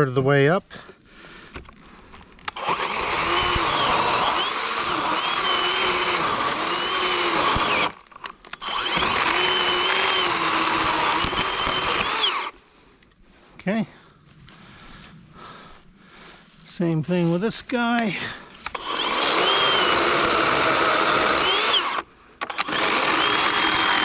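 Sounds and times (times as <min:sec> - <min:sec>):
electric chainsaw cutting log: 0:02.5 - 0:12.6, 0:18.7 - 0:24.0.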